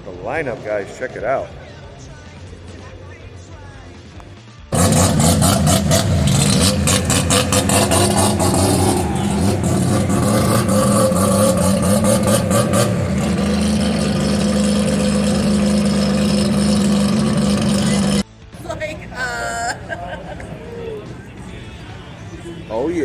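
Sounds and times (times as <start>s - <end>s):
car engine running: 0.0s - 23.0s
rapid crackling: 0.3s - 23.0s.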